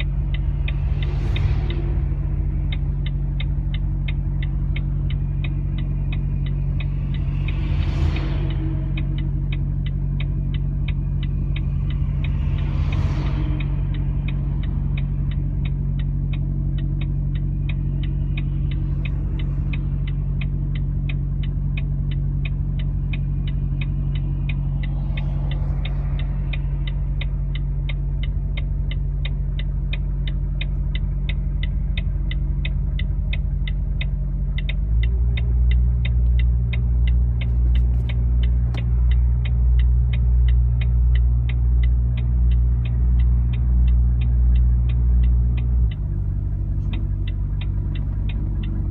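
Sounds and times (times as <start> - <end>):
regular ticking: 0.0 - 48.9
vehicle engine humming: 0.0 - 48.9
brief whooshes: 24.6 - 27.8.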